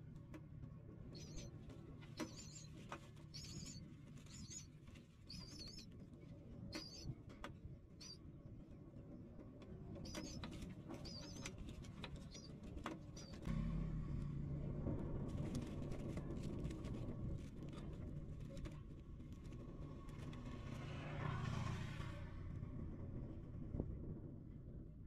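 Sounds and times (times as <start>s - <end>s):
high thin bird chirps: 1.2s - 1.5s, 2.2s - 2.7s, 3.3s - 4.7s, 5.3s - 5.9s, 6.7s - 7.1s, 10.0s - 11.5s, 12.2s - 12.5s
low rumble: 13.1s - 25.0s.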